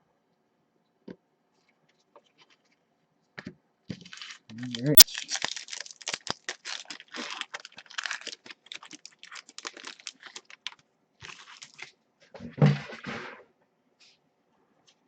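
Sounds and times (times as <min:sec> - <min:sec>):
wrapper crinkling and tearing: 0:04.0 - 0:12.0.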